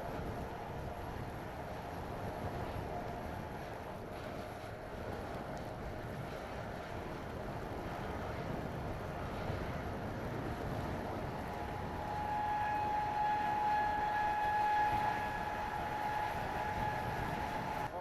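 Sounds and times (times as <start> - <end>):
strong wind buffeting microphone: 0.0 - 18.0
high machinery whine: 10.6 - 18.0.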